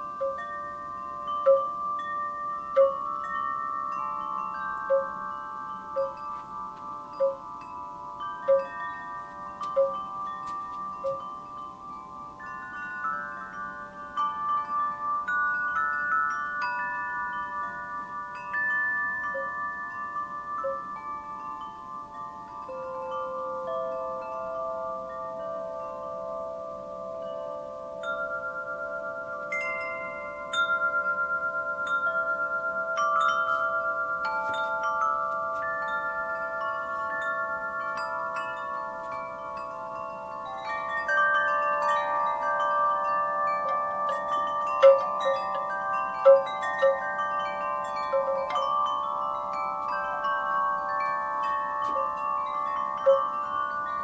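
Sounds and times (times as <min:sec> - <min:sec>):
wind chimes ringing: 0:00.0 - 0:54.0.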